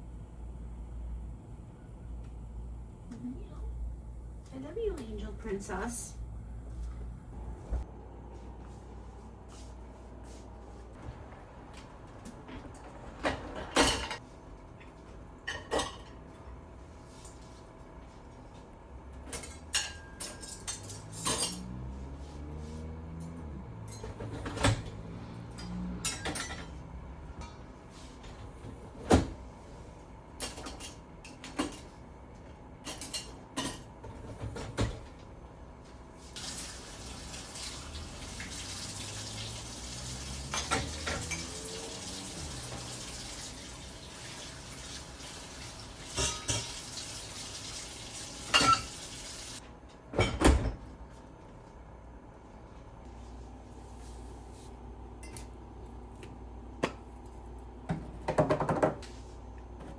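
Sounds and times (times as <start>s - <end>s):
dishes clinking in a sink: 13.2s - 14.2s, 15.4s - 16.2s, 19.3s - 21.8s, 25.6s - 26.8s, 40.1s - 41.6s, 46.0s - 47.2s, 48.4s - 49.2s, 55.2s - 55.5s
tap water running: 36.3s - 49.6s.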